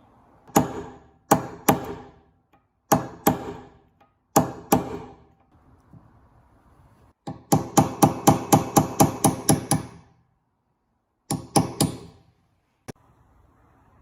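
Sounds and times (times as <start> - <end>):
hammer striking metal: 0.5 - 5.4, 7.3 - 10.1.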